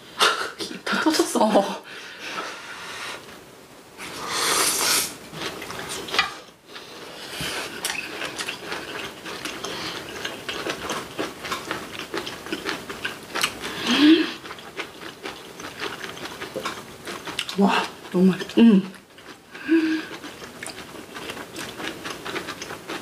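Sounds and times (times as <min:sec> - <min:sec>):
slurping: 0:04.0 - 0:16.7
chewing with wet mouth clicks: 0:07.7 - 0:13.8, 0:14.4 - 0:19.5, 0:20.1 - 0:23.0.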